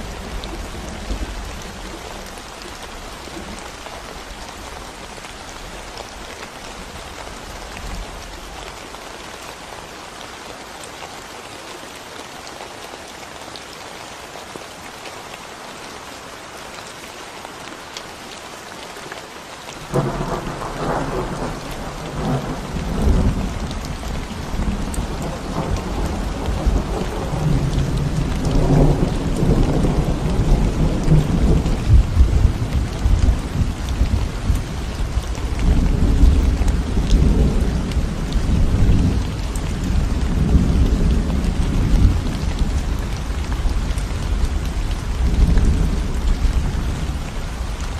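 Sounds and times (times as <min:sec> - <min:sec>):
rain on concrete road: 0:00.0 - 0:47.9
thunder rumbling: 0:19.9 - 0:47.2.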